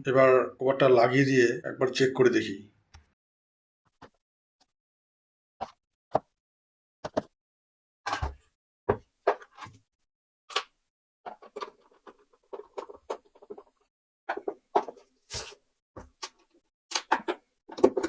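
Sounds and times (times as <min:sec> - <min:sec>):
plastic casing knocks and clicks: 0:16.0 - 0:18.0.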